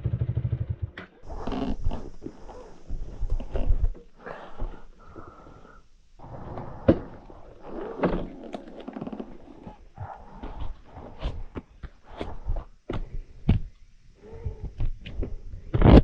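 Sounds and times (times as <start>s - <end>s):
footsteps: 1.3s - 5.6s, 6.4s - 13.8s.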